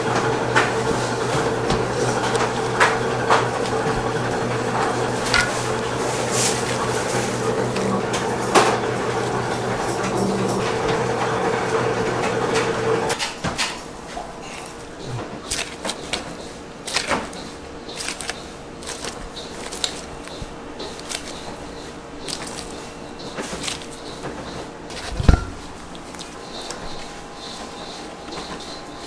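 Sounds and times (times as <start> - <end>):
utensils clicking and knocking: 0.0 - 11.5
machine humming: 0.0 - 13.2
heavy thump: 25.2 - 25.7.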